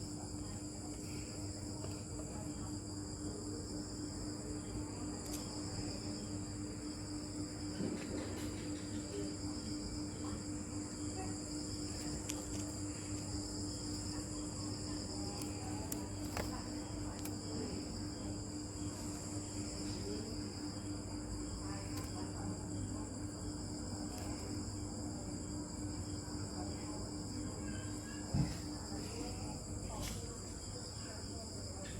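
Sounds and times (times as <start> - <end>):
crickets chirping: 0.0 - 31.9
faint clicks: 21.9 - 22.2.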